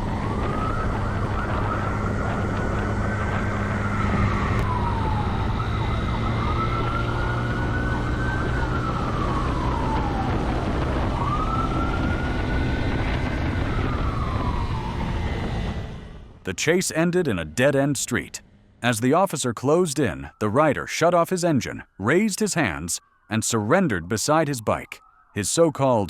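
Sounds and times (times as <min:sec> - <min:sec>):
car engine and road noise: 0:00.0 - 0:18.9
police siren wailing: 0:00.0 - 0:26.0.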